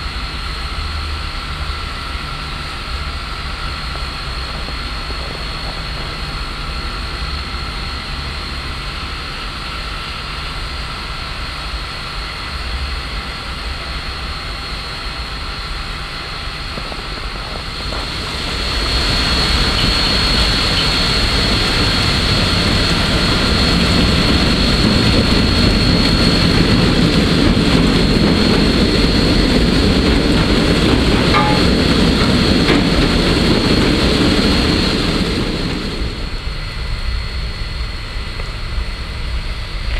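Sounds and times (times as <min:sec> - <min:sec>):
steam locomotive roar and hiss: 0:00.0 - 0:39.9
faint high whine: 0:30.8 - 0:33.8.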